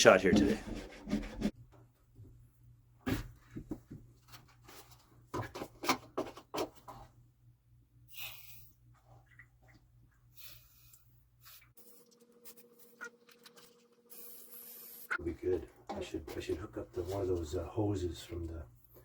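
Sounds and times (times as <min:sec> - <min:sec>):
knocks and clunks of handling: 0:00.2 - 0:01.8.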